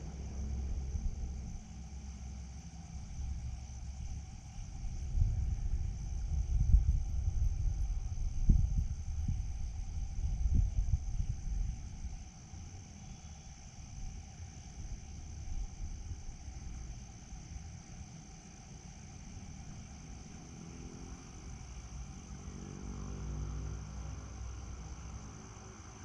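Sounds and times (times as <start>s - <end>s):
low rumble: 0.0s - 12.9s
insect chorus: 0.0s - 26.0s
low droning hum: 0.0s - 26.0s.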